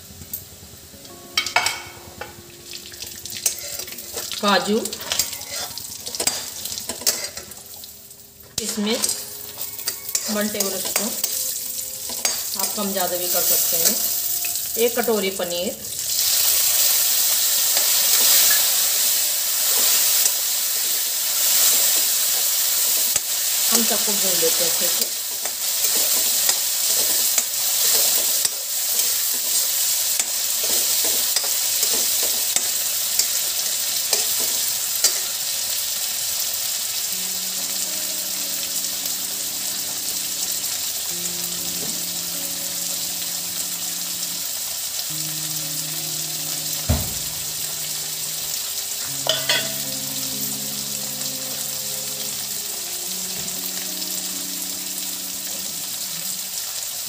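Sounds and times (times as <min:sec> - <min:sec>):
food sizzling in hot oil: 0:00.0 - 0:57.0
spoon clinking and scraping pan: 0:03.4 - 0:04.3, 0:05.0 - 0:07.6, 0:08.6 - 0:14.1, 0:24.9 - 0:35.3, 0:49.2 - 0:49.8.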